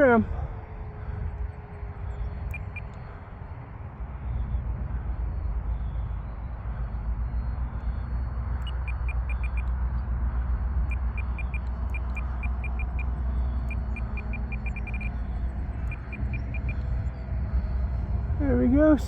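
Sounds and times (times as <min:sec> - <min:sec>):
low rumble: 0:00.0 - 0:19.0
short high beeps: 0:02.5 - 0:02.9, 0:08.6 - 0:09.7, 0:10.9 - 0:13.1, 0:13.7 - 0:15.2.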